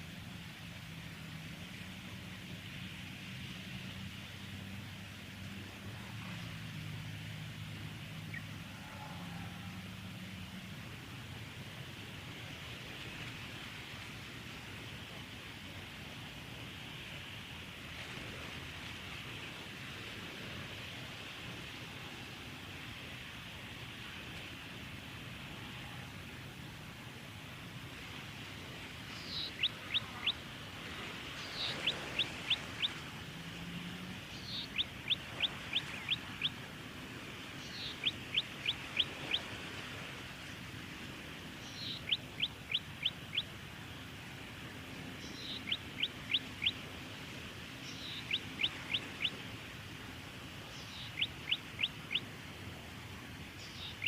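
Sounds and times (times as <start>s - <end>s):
bird singing: 29.1s - 30.4s, 31.4s - 33.0s, 34.3s - 36.6s, 37.6s - 39.4s, 41.6s - 43.5s, 45.0s - 46.8s, 47.8s - 49.4s, 50.7s - 52.3s, 53.6s - 54.0s.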